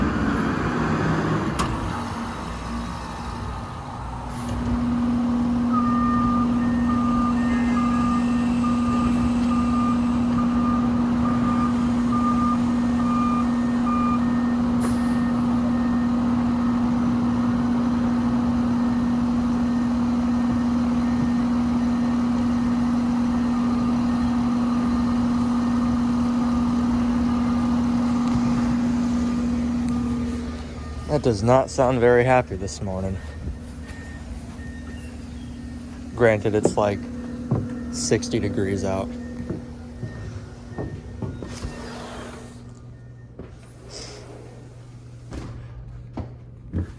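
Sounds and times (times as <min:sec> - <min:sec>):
air conditioner unit humming: 0:26.9 - 0:46.9.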